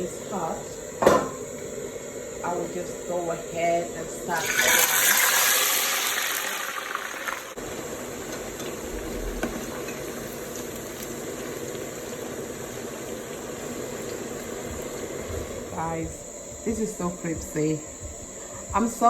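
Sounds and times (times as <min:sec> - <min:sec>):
fries sizzling in hot oil: 0:02.6 - 0:15.8.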